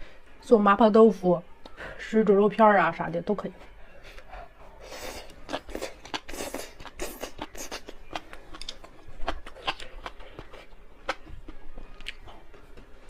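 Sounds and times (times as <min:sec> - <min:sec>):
wet crunchy chewing: 0:05.2 - 0:12.3.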